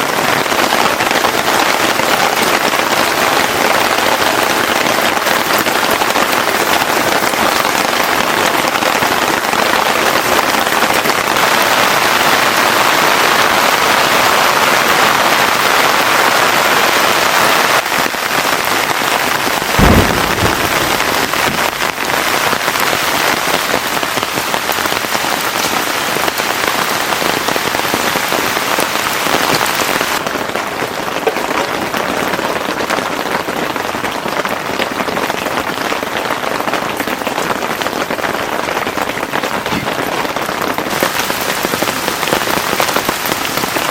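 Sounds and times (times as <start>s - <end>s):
heavy rain pouring: 0.0s - 43.9s
low thump: 19.8s - 22.2s.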